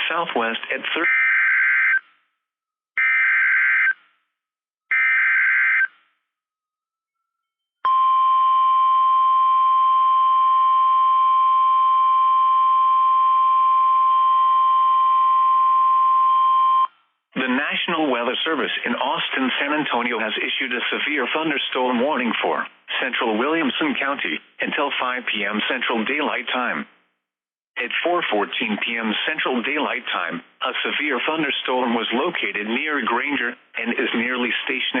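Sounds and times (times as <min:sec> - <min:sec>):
steady alarm tone: 0:03.0 - 0:04.0, 0:04.9 - 0:05.9, 0:07.2 - 0:16.9.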